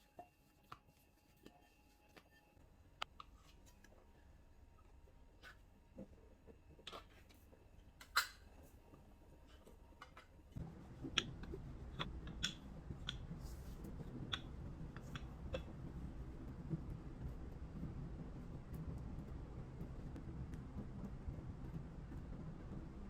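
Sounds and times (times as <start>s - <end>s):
low steady hum: 0.1s - 23.0s
faint clicks and taps: 8.9s - 23.0s.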